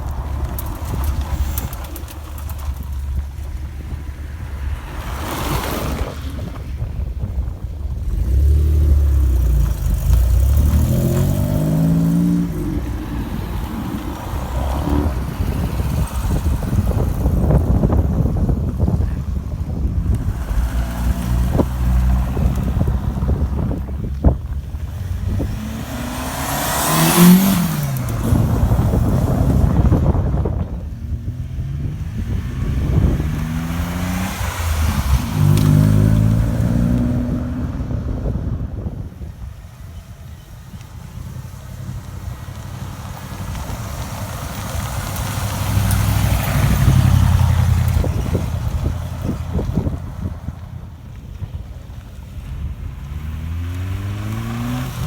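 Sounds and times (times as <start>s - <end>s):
car passing by: 3.8s - 7.4s, 8.0s - 39.1s, 41.6s - 51.2s
car engine running: 6.4s - 37.1s.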